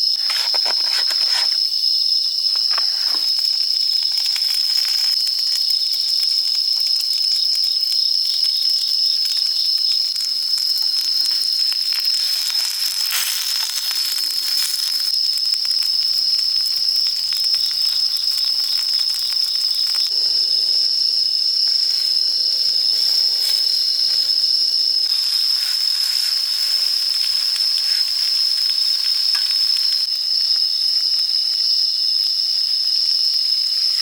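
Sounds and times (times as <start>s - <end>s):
insects chirring: 0.0s - 34.0s
meat sizzling in a frying pan: 2.6s - 31.7s.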